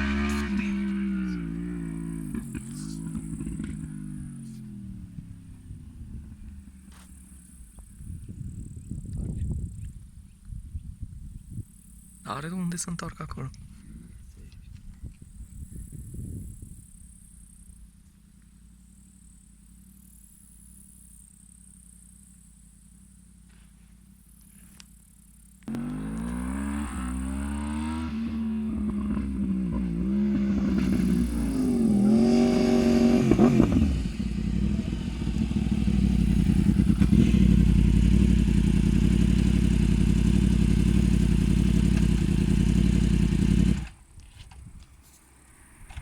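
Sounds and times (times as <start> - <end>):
motorcycle engine revving: 0.0 - 8.0, 25.1 - 44.0.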